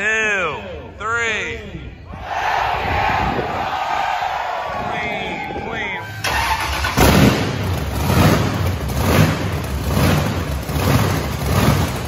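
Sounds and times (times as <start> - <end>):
race car engine revving: 6.2 - 12.0.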